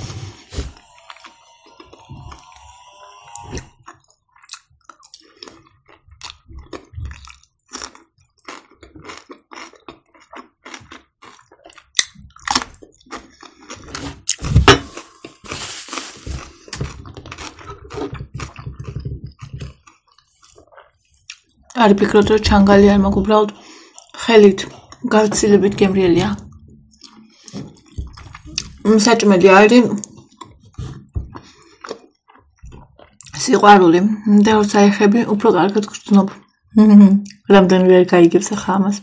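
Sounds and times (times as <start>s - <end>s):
person chewing crunchy cucumber: 0.0s - 21.8s, 23.5s - 25.1s, 26.4s - 33.4s, 37.2s - 37.5s
wet chewing: 0.0s - 25.3s, 26.3s - 33.7s.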